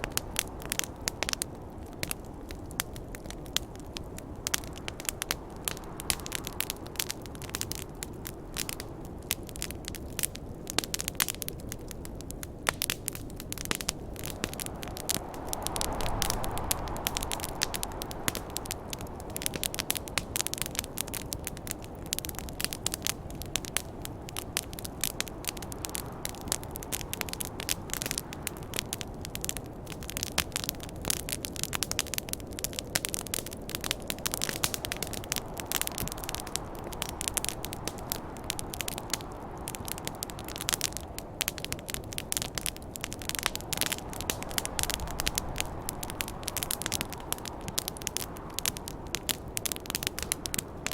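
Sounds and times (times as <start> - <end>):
campfire crackling and popping: 0.0 - 50.9
snowstorm wind rushing: 11.8 - 50.9.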